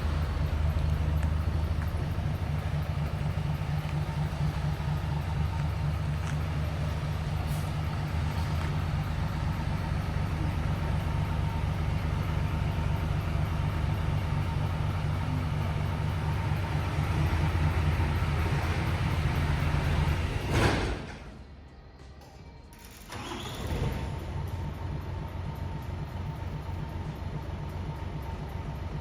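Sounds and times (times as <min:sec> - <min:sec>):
diesel truck engine idling: 0:00.0 - 0:21.6, 0:23.2 - 0:29.0.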